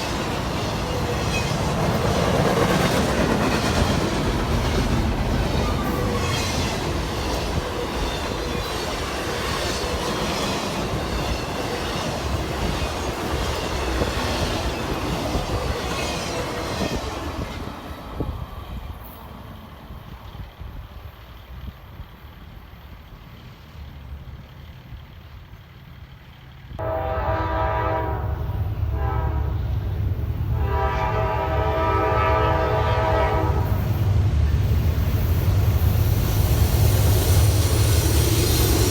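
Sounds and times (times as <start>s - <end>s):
train wheels clacking on rails: 0.0s - 22.0s, 28.4s - 38.9s
locomotive air horn: 26.8s - 34.1s.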